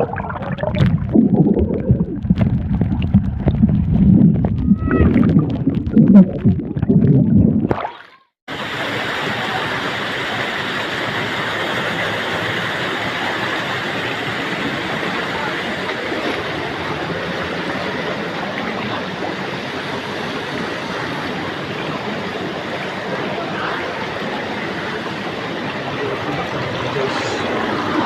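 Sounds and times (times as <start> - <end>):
water sloshing and gurgling: 0.0 - 8.4.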